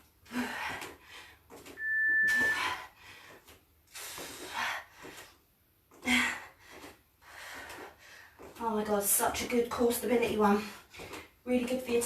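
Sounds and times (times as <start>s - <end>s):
short steady beep: 1.8s - 2.7s
woman breathing hard: 6.0s - 8.5s.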